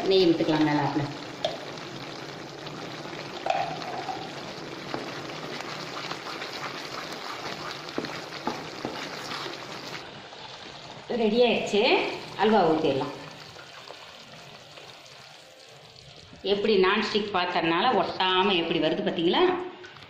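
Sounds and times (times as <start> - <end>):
halwa sizzling and bubbling: 0.0 - 18.2
spatula tapping pan: 7.9 - 9.2.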